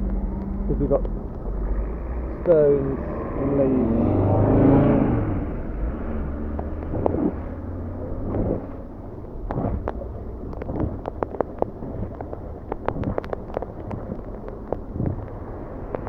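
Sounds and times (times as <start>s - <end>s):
passing road vehicle rumble: 0.0s - 16.0s
sharp taps: 9.4s - 16.0s.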